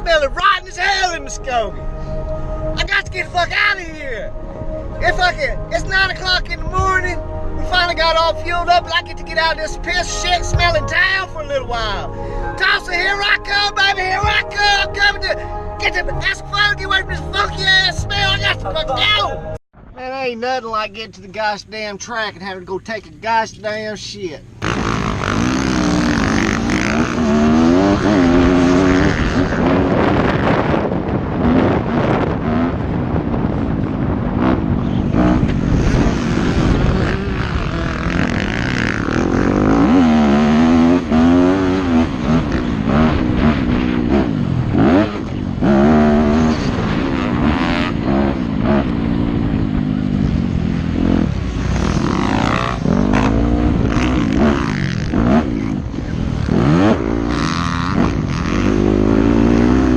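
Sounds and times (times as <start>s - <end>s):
motocross bike engine revving: 24.6s - 30.8s, 31.4s - 59.9s.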